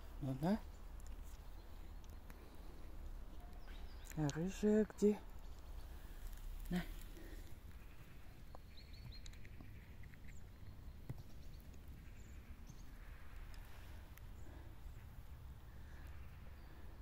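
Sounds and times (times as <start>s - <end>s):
faint high bird calls: 1.4s - 17.0s
small bird high chirps: 3.3s - 6.2s, 7.7s - 13.7s.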